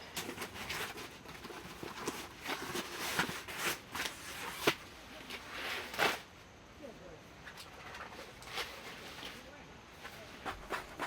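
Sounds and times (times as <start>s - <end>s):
rustling and clattering: 0.0s - 6.3s.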